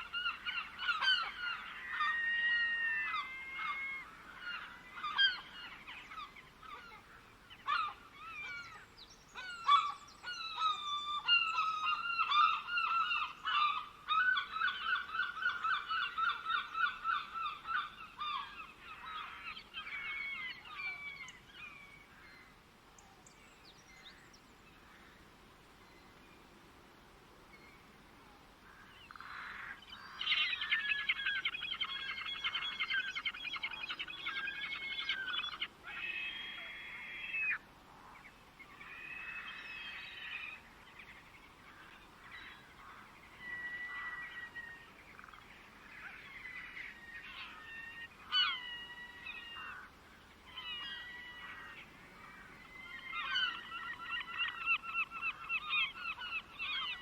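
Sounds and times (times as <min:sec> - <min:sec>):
birds calling with nasal notes: 0:28.6 - 0:57.0.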